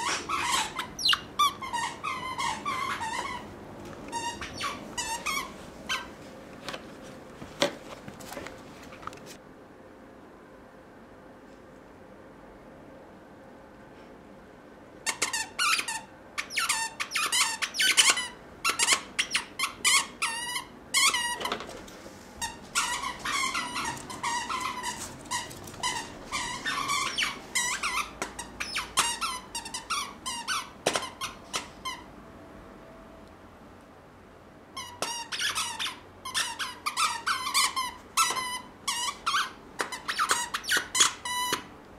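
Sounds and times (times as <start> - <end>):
squeaky toy squeaking: 0.0 - 3.5, 4.1 - 6.1, 15.0 - 21.4, 22.4 - 32.0, 34.8 - 41.7.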